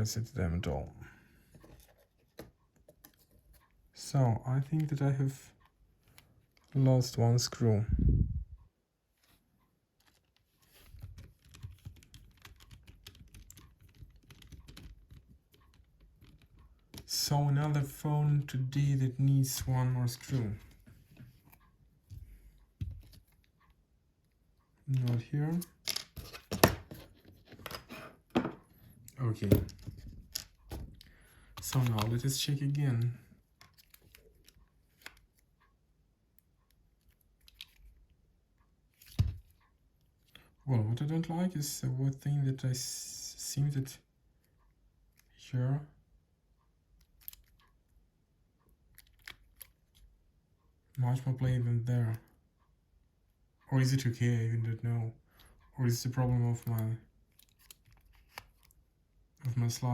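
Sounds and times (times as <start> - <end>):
small plastic parts clicking: 37.0 - 38.0, 47.0 - 47.7, 48.9 - 50.1, 56.6 - 58.8
phone plastic clicks and scrapes: 57.3 - 58.8.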